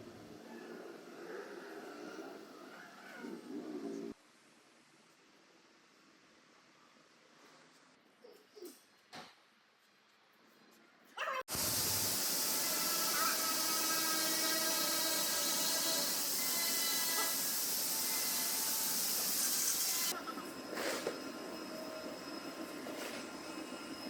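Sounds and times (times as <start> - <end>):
loud steady hiss: 11.5 - 20.1.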